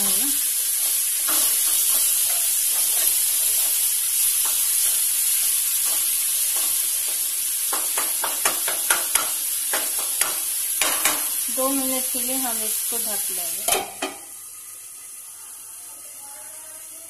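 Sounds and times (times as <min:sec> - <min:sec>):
masala sizzling in oil: 0:00.0 - 0:17.0
spatula scraping a pan: 0:00.5 - 0:11.3.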